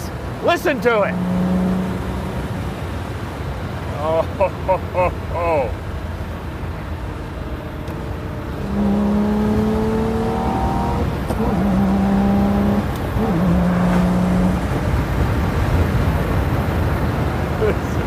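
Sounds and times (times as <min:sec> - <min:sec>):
car engine pulling: 0:00.0 - 0:18.0
wind rumble: 0:05.8 - 0:18.0.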